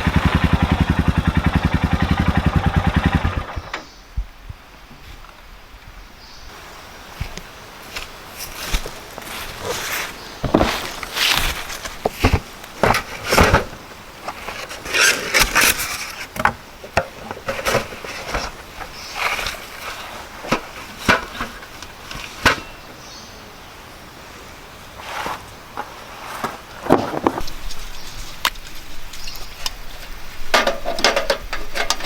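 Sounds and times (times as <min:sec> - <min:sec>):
rustling of handled objects: 0:07.2 - 0:22.8
objects knocking and clicking: 0:30.5 - 0:32.0.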